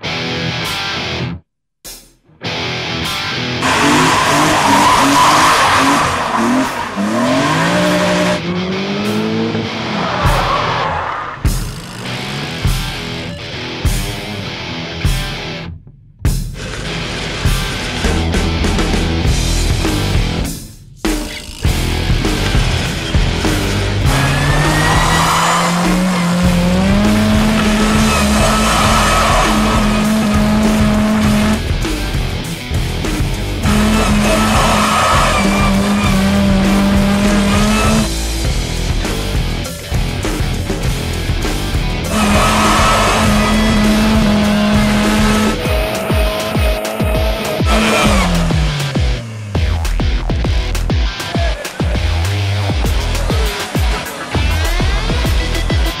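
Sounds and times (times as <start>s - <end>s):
loud rock music: 0.0s - 56.0s
engine revving: 3.5s - 14.4s, 21.2s - 56.0s
car tyres squealing: 3.6s - 13.3s, 21.3s - 31.8s, 33.4s - 38.3s, 42.0s - 49.9s.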